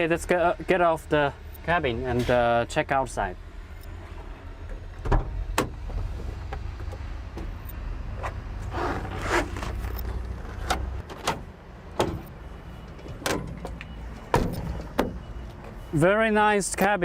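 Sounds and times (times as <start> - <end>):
rustling scrape: 8.2 - 10.7
knocks and clunks of climbing: 9.6 - 15.9.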